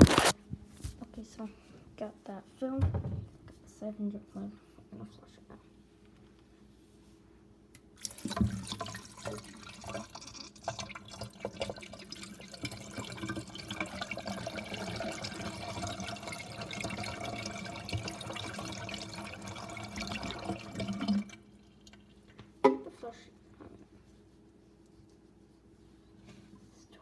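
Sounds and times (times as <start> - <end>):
water pouring and splashing: 8.0 - 22.2.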